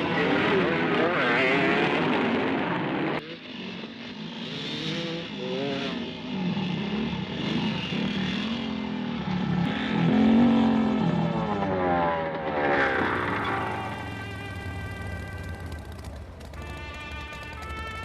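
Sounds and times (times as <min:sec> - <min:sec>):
motorcycle engines revving: 0:00.0 - 0:18.0.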